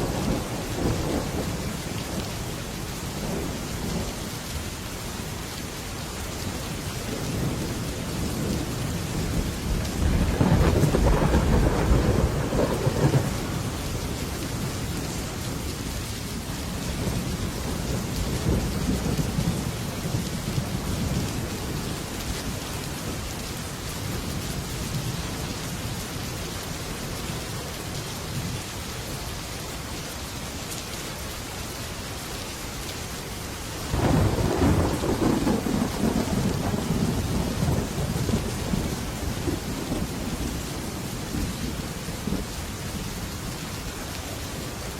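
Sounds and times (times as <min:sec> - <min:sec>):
thunder rumbling: 0:00.0 - 0:02.2, 0:07.2 - 0:14.8, 0:33.9 - 0:42.6
heavy rain on a metal roof: 0:00.0 - 0:44.9
loud thunderclap: 0:09.8 - 0:13.7, 0:33.9 - 0:40.6.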